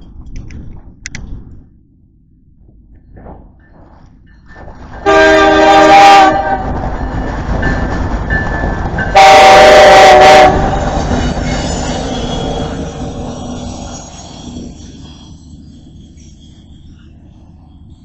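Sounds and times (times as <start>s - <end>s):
passing train rumble and clatter: 0.0s - 18.0s
locomotive air horn blasts: 5.0s - 6.8s, 9.1s - 11.2s.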